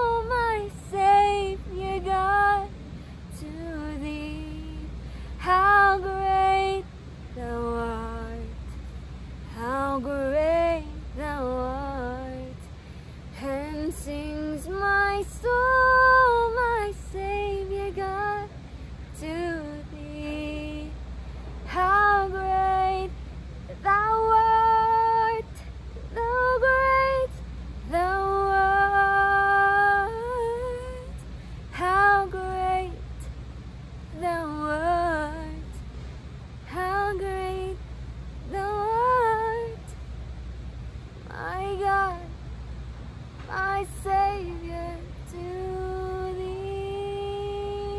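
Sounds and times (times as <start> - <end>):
woman singing a cappella: 0.0 - 33.3, 34.0 - 35.8, 36.6 - 40.0, 41.2 - 42.4, 43.4 - 47.9.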